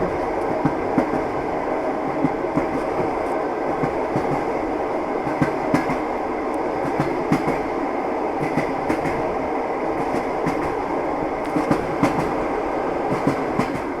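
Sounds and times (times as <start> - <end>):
train wheels clattering over rail joints: 6.8 - 7.7, 8.4 - 9.3, 11.4 - 12.4, 13.1 - 14.0.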